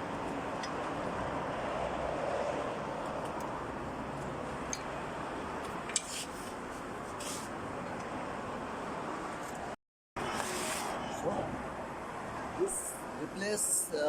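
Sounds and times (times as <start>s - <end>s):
steady background noise: 0.0s - 14.0s
brief scraping: 10.2s - 11.0s.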